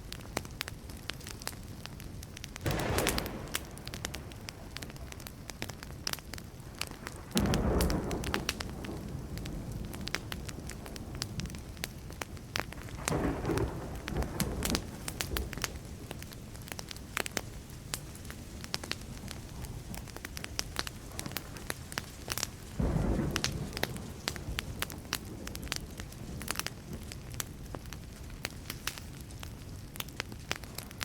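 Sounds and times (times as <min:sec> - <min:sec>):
wood fire crackling and popping: 0:00.0 - 0:31.0
distant thunder rumbling: 0:02.6 - 0:16.3, 0:22.7 - 0:27.9.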